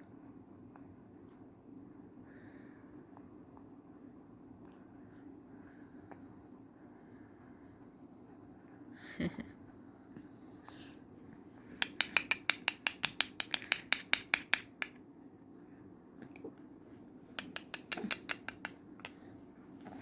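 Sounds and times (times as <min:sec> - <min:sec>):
metal spoon clicking against bowl: 0:11.8 - 0:15.0, 0:17.4 - 0:19.2.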